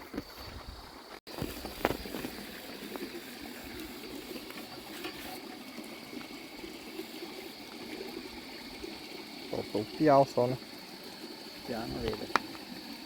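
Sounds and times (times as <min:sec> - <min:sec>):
water gurgling and lapping: 0:01.3 - 0:13.0.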